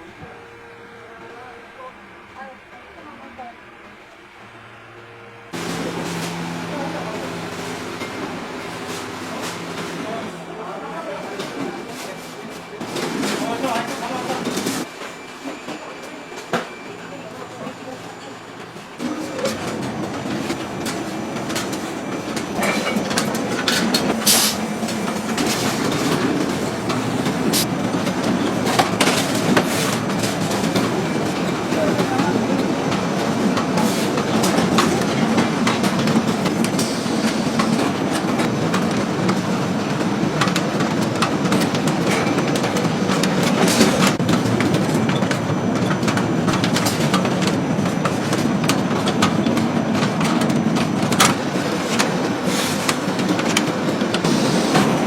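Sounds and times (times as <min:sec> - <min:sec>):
knitting machines clattering: 0:19.0 - 0:55.0.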